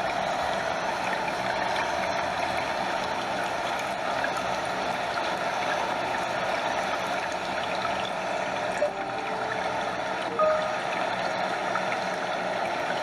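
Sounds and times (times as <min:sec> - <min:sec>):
faint short tone: 0:08.8 - 0:11.1.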